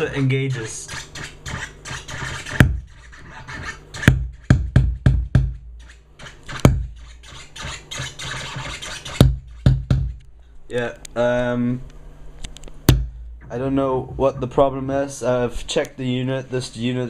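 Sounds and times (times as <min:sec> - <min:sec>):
record scratching through speaker: 0:00.0 - 0:04.1.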